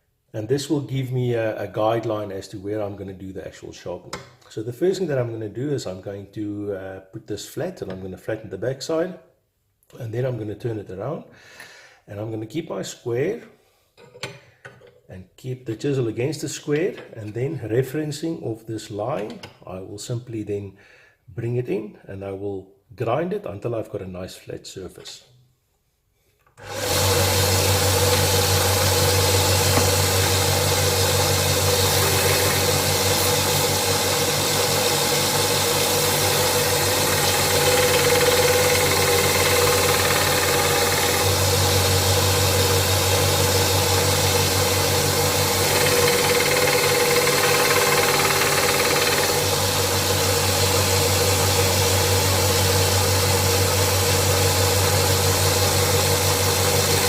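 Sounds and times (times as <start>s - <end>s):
chisel grinding on sanding belt: 26.6s - 42.0s, 45.2s - 49.9s
belt sander humming: 26.6s - 57.0s.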